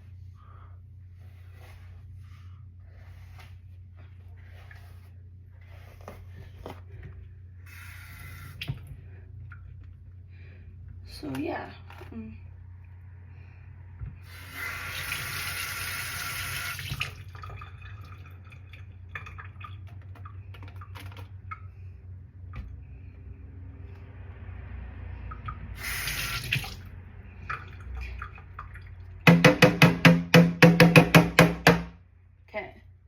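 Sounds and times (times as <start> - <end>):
bathroom tap running: 7.7 - 8.9, 14.2 - 21.0, 25.5 - 26.9
rapid loud knocks: 29.3 - 31.9.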